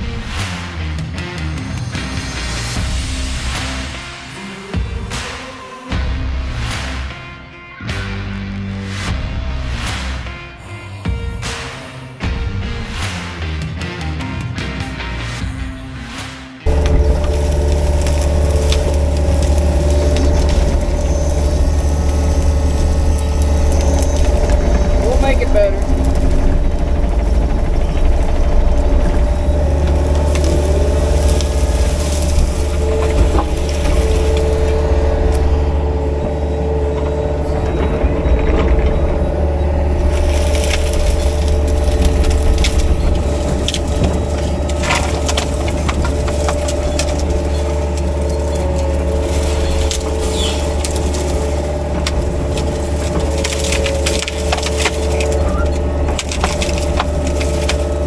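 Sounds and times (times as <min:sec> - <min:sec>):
excavator engine whining: 0:00.0 - 0:07.3, 0:16.6 - 0:58.0
wood cracking and snapping: 0:16.6 - 0:58.0.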